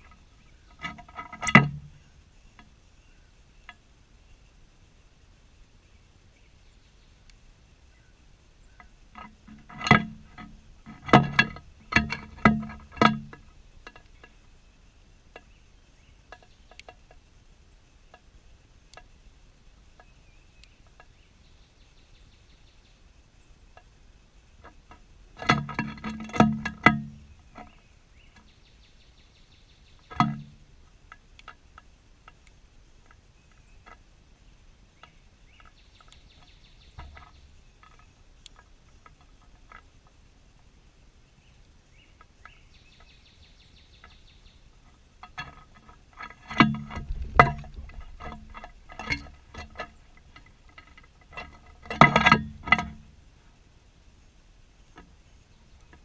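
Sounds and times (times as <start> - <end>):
birds pecking taps and knocks: 0.0 - 2.8, 8.8 - 14.4, 16.3 - 17.2, 20.0 - 21.2, 24.6 - 28.5, 30.0 - 34.1, 35.0 - 40.2, 44.0 - 53.1.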